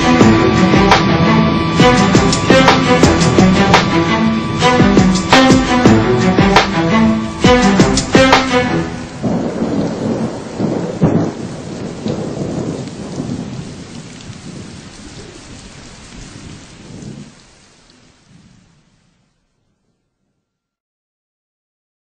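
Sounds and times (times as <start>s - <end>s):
sharp thunderclap: 0.0s - 17.4s
rumbling thunder: 0.0s - 19.2s
steady rain: 0.0s - 20.0s.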